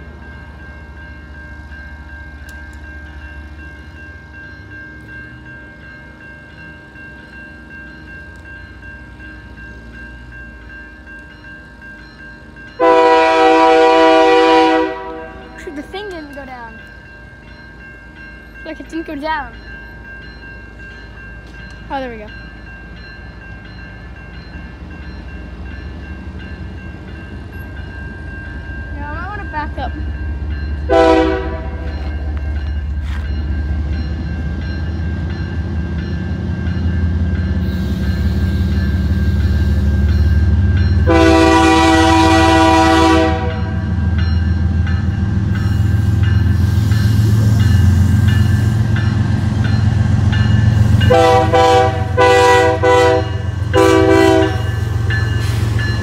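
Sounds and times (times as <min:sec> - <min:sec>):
train horn blasts: 0:12.8 - 0:15.6, 0:30.9 - 0:31.9, 0:41.0 - 0:43.9, 0:51.0 - 0:54.8.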